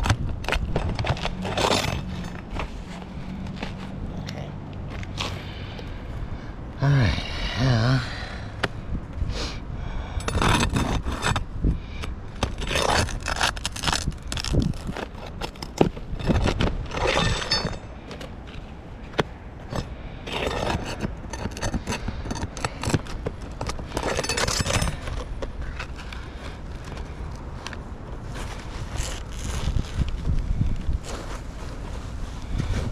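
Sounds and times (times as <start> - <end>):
metal tool scraping shingles: 0.5 - 3.0, 10.2 - 17.9, 19.6 - 26.0.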